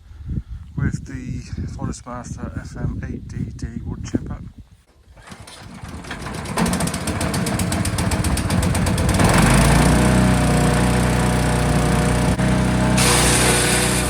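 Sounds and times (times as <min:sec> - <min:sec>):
wood chipper engine running: 0:05.2 - 0:14.0.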